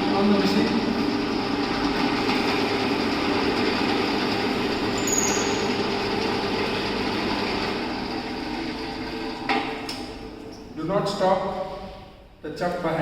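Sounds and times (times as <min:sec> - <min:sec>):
brief high squeak: 0:05.0 - 0:05.8.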